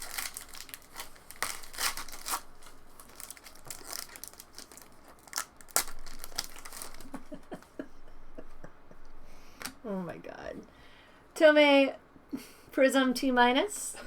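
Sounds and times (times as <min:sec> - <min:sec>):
foil wrappers crinkling and tearing: 0:00.0 - 0:07.6.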